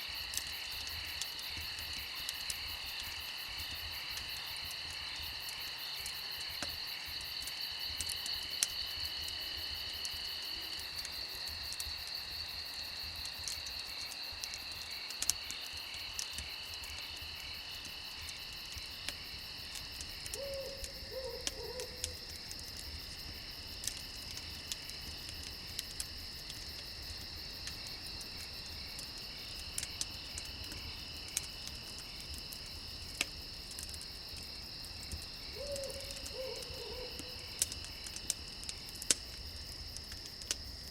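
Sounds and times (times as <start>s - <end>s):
campfire crackling: 0.0s - 40.9s
crickets chirping: 0.0s - 40.9s
low hooting call: 20.3s - 22.2s, 35.6s - 37.4s.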